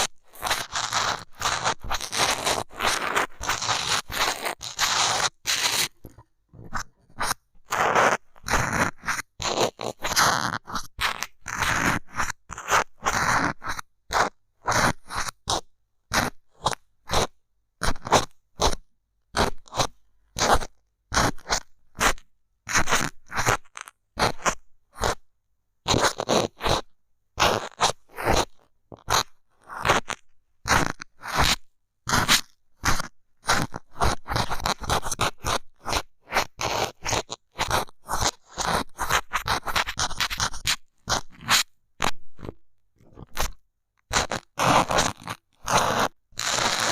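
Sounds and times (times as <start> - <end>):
stick scraping on microphone: 0.0 - 14.2, 30.7 - 46.9.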